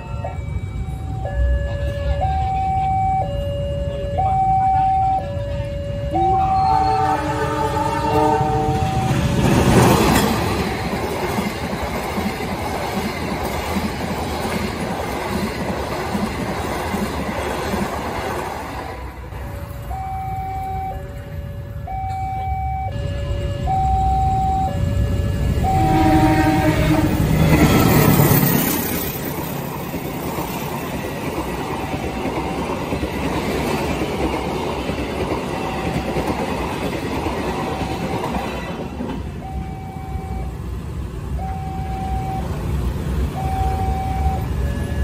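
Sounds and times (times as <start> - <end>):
two-tone crossing alarm: 0.0 - 11.4, 18.8 - 27.1, 33.7 - 45.0
train wheels rumbling on rail: 0.0 - 45.0
train horn: 5.1 - 9.3, 25.3 - 27.4, 38.3 - 39.0.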